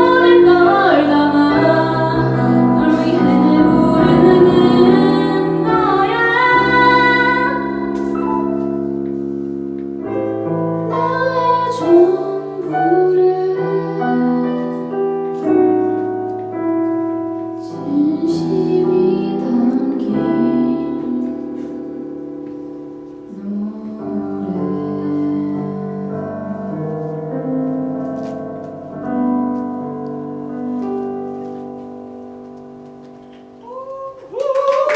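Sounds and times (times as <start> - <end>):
woman singing a ballad: 0.0 - 8.6, 10.8 - 15.8, 17.6 - 22.0, 23.3 - 27.2, 33.6 - 34.9
piano accompaniment: 0.0 - 34.9.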